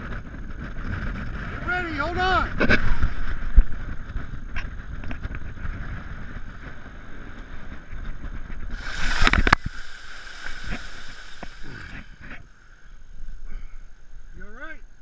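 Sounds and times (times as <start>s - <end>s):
steady hum: 8.7s - 13.2s.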